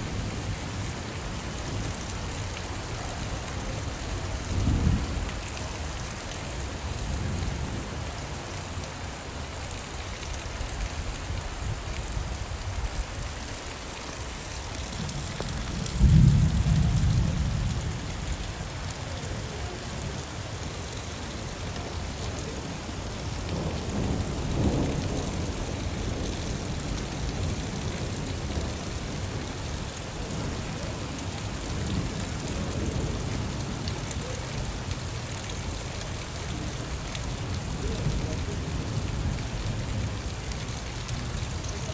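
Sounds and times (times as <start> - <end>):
steady rain falling: 0.0 - 41.9
thunder rolling: 15.1 - 17.9.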